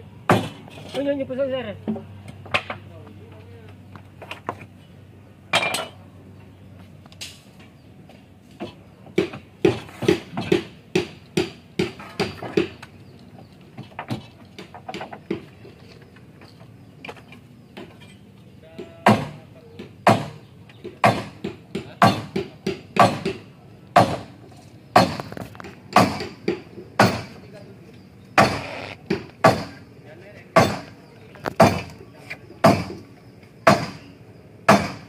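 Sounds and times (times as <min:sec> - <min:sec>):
hand tool striking wood: 0:00.3 - 0:00.7, 0:08.6 - 0:12.9, 0:13.8 - 0:15.5, 0:18.7 - 0:24.3, 0:24.9 - 0:27.4, 0:28.4 - 0:29.8, 0:30.6 - 0:32.0, 0:32.6 - 0:33.0, 0:33.6 - 0:34.0, 0:34.7 - 0:35.0.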